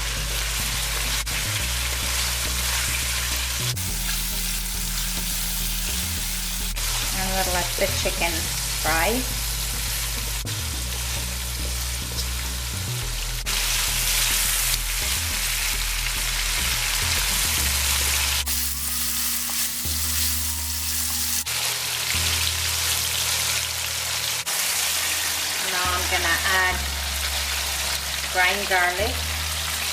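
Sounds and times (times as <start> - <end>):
chicken sizzling in hot oil: 0.1 - 12.7, 13.4 - 29.9.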